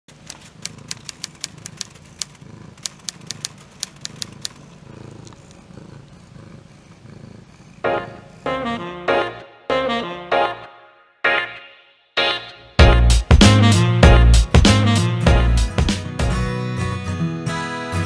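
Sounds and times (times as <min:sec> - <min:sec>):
typewriter key clicks: 0:00.1 - 0:04.6
cat purring: 0:00.1 - 0:09.1
loud saxophone music: 0:07.9 - 0:11.6, 0:12.2 - 0:16.4.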